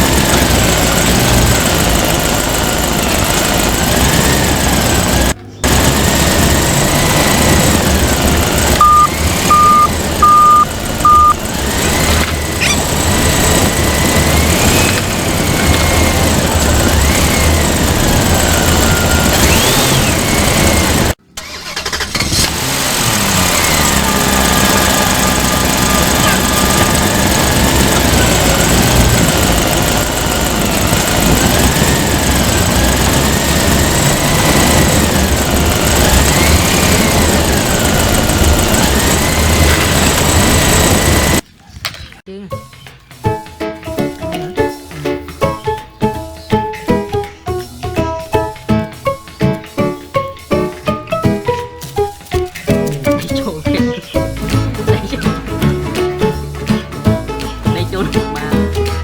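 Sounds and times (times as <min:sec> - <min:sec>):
toy electronic engine sound: 0:00.0 - 0:41.4, 0:43.8 - 0:59.0
short beeps: 0:08.8 - 0:11.4.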